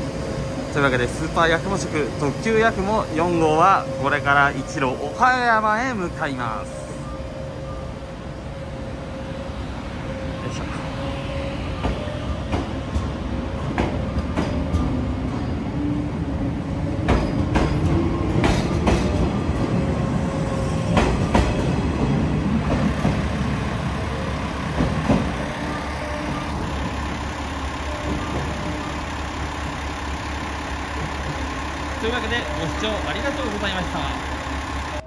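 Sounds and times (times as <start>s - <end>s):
train low rumble: 0.0s - 35.0s
train wheels clacking over rail joints: 11.8s - 15.0s, 17.0s - 19.4s, 20.9s - 23.4s, 24.6s - 25.7s.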